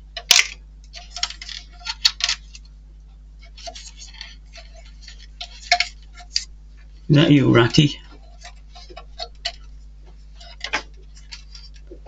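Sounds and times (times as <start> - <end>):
faint steady hum: 0.0 - 12.0
small hard parts clicking: 0.1 - 2.7, 3.4 - 6.5, 7.7 - 9.7, 10.4 - 12.0.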